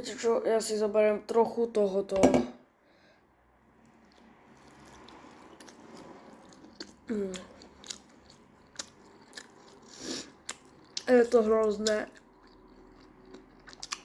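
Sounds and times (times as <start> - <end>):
person chewing food: 3.8 - 14.0.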